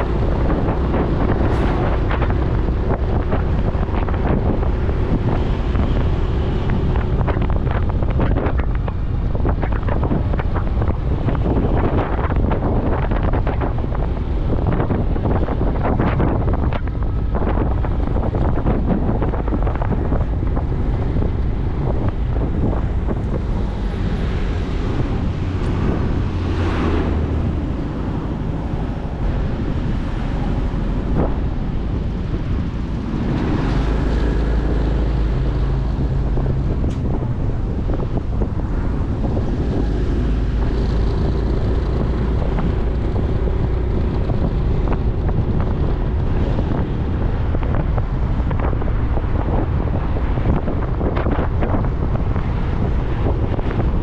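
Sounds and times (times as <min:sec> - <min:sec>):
road noise: 0:00.0 - 0:54.0
wind buffeting microphone: 0:00.0 - 0:54.0.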